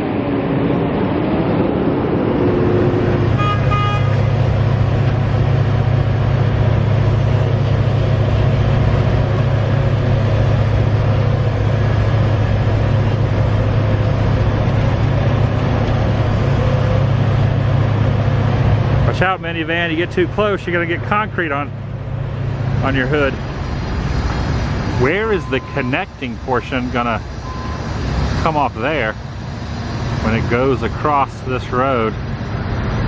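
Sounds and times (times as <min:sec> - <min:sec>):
truck engines rumbling: 0:00.0 - 0:33.0
short horn toot: 0:03.3 - 0:04.3.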